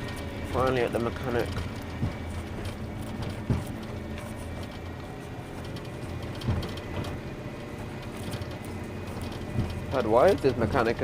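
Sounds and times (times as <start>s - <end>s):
diesel truck engine running: 0.0s - 11.0s
short knocks: 1.4s - 4.9s.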